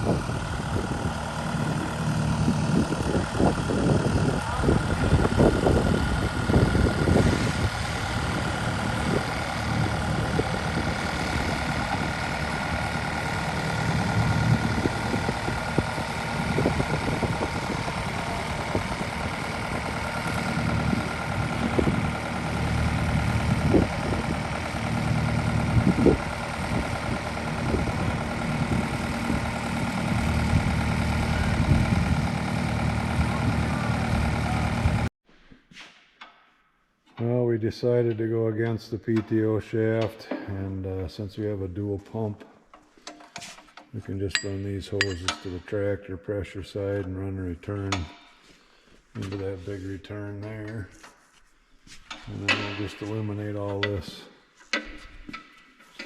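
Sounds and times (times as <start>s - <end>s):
engine idling: 0.0s - 35.1s, 51.8s - 56.0s
sharp knocks and clanks: 42.4s - 45.7s, 52.0s - 56.0s.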